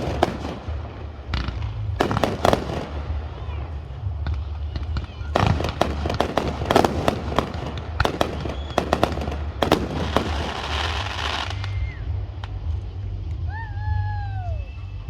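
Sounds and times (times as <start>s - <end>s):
fireworks bangs and cracks: 0.0s - 13.5s
firework crackling hiss: 0.0s - 13.6s
falling whistle: 13.5s - 15.0s.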